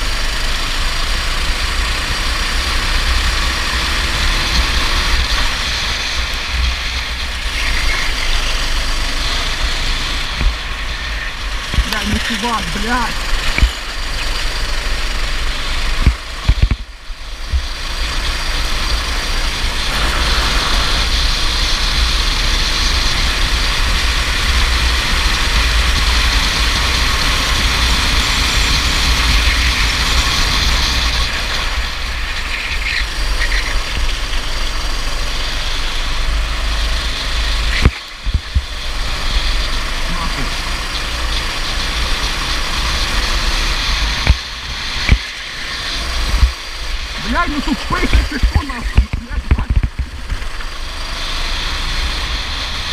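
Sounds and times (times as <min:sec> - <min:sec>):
go-kart engine running: 0:00.0 - 0:52.9
wind rumble on microphone: 0:09.1 - 0:13.9, 0:15.8 - 0:40.1, 0:42.6 - 0:47.2, 0:47.8 - 0:52.9.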